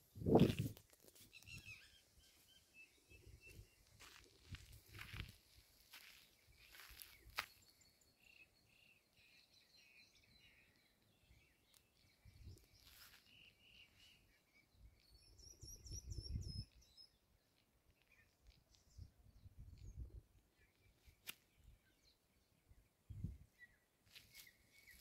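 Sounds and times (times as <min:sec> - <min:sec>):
wind on microphone: 0:00.1 - 0:00.8
birds chirping: 0:01.2 - 0:25.0.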